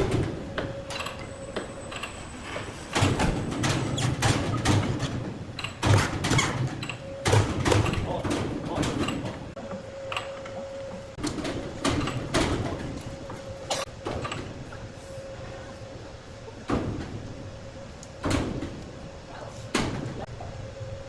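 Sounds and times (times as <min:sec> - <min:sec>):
heavy knocks and clunks: 0:02.9 - 0:09.5.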